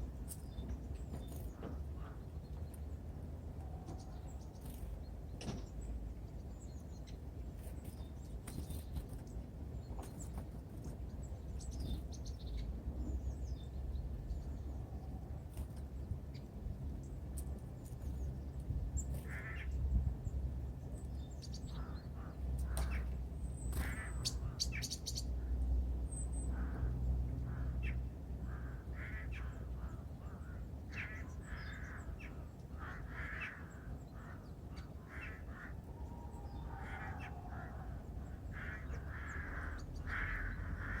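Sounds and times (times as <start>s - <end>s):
birds giving rough calls: 19.1s - 19.8s, 21.8s - 24.9s, 27.5s - 41.0s.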